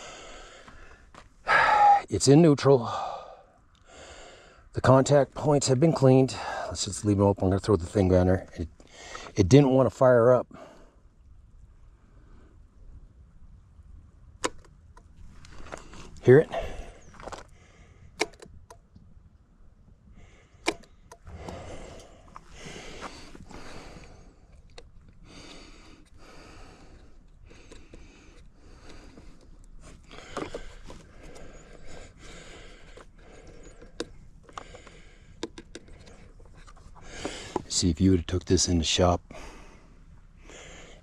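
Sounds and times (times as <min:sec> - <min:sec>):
sharp clicks: 0:18.2 - 0:19.0, 0:20.6 - 0:22.1
soft rustling handling noise: 0:27.1 - 0:35.0, 0:35.8 - 0:38.8.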